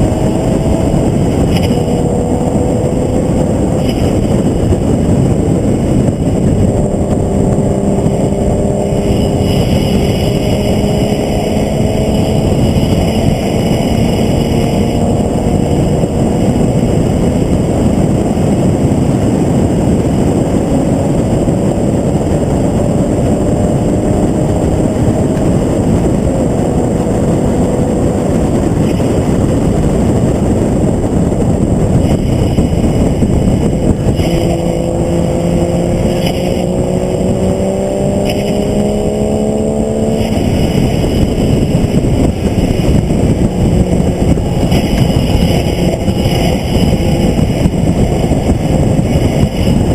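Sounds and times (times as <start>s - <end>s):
heavy wind noise: 0.0s - 49.9s
race car engine: 0.0s - 49.9s.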